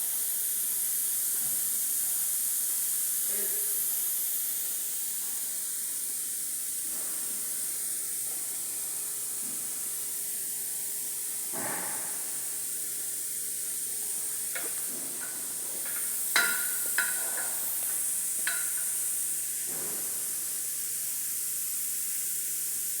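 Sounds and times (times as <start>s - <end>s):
compressed air hissing: 11.3s - 21.4s.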